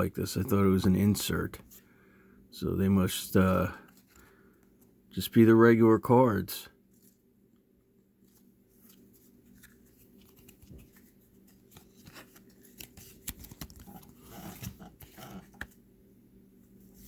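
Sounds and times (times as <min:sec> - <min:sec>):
trading cards handled by hand: 0:00.3 - 0:01.9, 0:03.1 - 0:05.5, 0:06.8 - 0:16.0.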